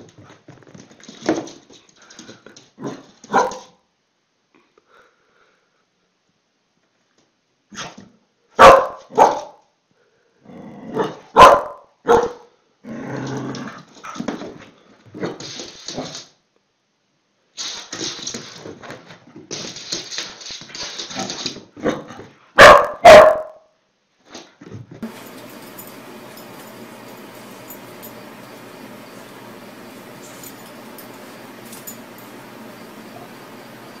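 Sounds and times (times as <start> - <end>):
dog barking: 3.3 - 3.8, 8.6 - 9.6, 11.0 - 12.5, 22.6 - 23.6.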